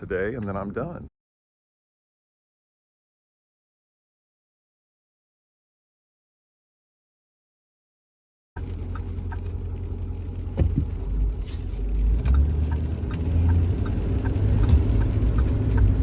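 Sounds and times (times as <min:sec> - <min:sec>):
vehicle road rumble: 0:08.6 - 0:16.0.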